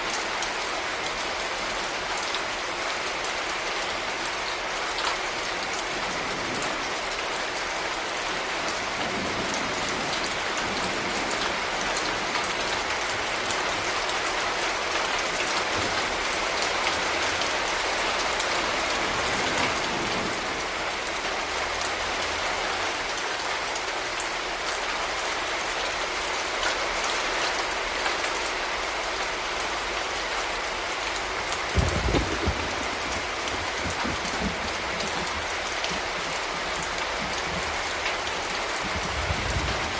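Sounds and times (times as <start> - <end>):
rain hissing: 28.2 - 39.9.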